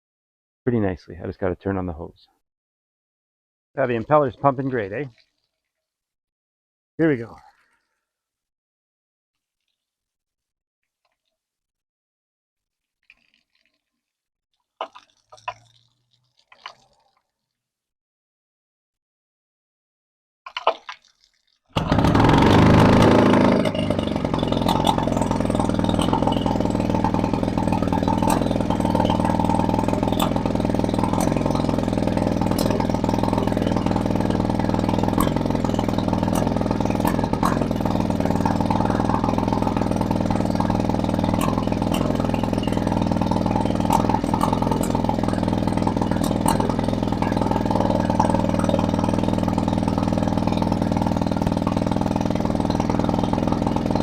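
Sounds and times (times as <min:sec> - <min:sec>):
outboard motor running: 0:21.8 - 0:54.0.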